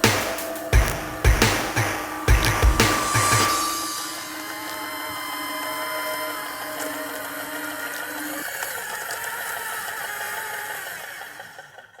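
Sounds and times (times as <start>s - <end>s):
small electric motors whining: 3.5s - 12.0s.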